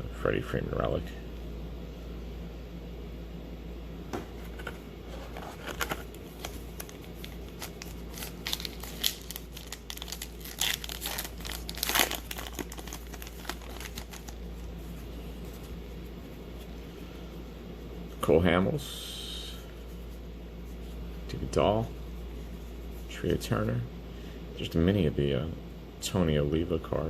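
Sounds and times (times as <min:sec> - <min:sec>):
card pack wrapper crinkling and tearing: 0:05.3 - 0:14.7.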